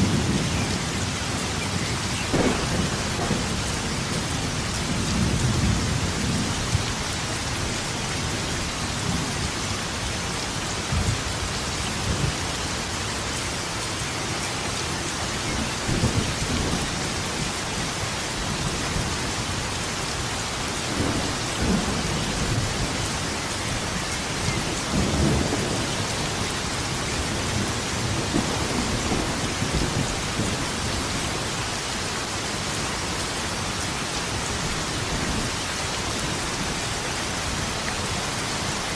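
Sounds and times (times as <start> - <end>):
thunder rumbling: 0.0 - 10.0, 20.9 - 31.8
rain hissing: 0.0 - 38.9.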